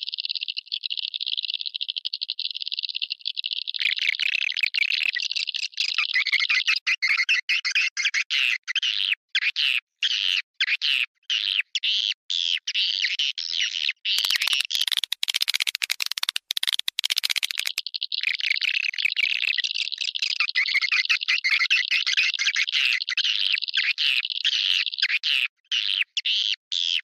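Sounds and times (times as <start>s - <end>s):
swiftlets chattering twitters: 14.1s - 22.6s
fast dry clicks: 14.2s - 20.2s.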